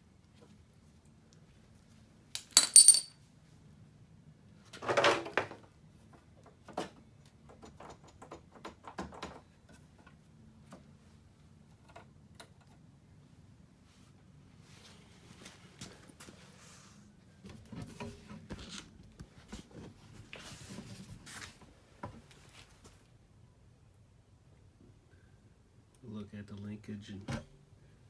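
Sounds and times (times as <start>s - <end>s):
metallic clatter with ring: 2.4s - 3.1s.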